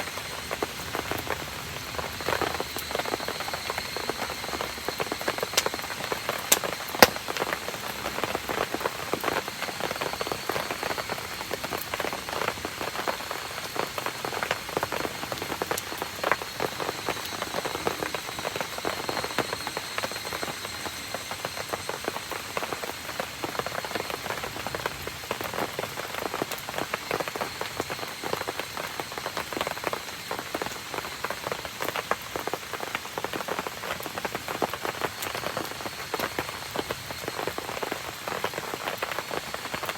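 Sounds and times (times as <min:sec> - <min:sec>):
rain pattering: 0:00.0 - 0:39.9
sharp clicks: 0:06.5 - 0:07.2.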